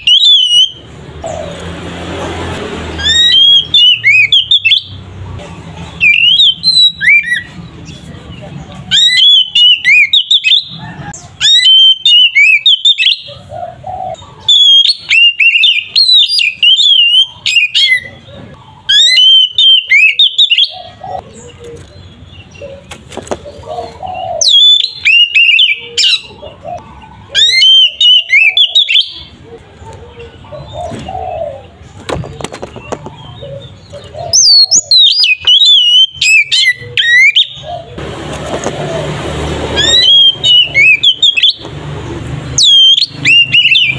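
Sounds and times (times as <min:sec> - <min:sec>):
bird singing whistled notes: 0:00.0 - 0:00.8, 0:03.0 - 0:05.0, 0:06.0 - 0:08.0, 0:08.9 - 0:10.8, 0:11.4 - 0:13.3, 0:14.4 - 0:18.2, 0:18.9 - 0:20.8, 0:24.2 - 0:26.4, 0:27.4 - 0:29.3, 0:34.3 - 0:37.7, 0:39.8 - 0:41.7, 0:42.6 - 0:43.9.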